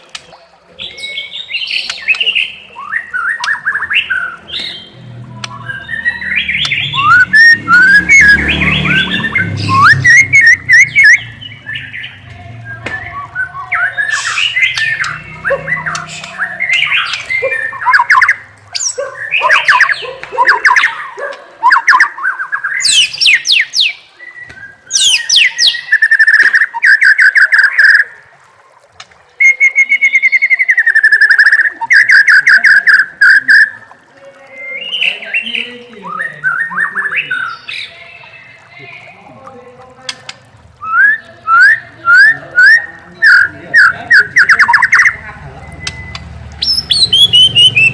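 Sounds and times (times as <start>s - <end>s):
bird fast repeated notes: 0.0s - 28.2s, 40.3s - 47.9s
songbird whistling: 0.3s - 21.0s, 21.6s - 28.1s, 29.4s - 33.8s, 40.8s - 47.9s.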